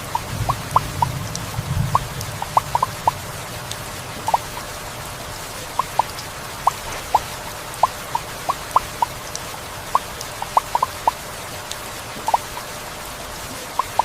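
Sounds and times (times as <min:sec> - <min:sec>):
heavy rain hiss: 0:00.0 - 0:14.0
large raindrops plinking: 0:00.0 - 0:14.0.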